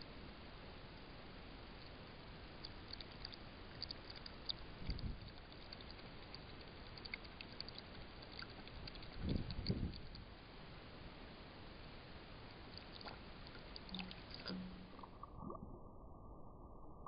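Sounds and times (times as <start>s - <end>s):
steady low hiss: 0.0s - 17.0s
faint clicks: 2.6s - 10.3s.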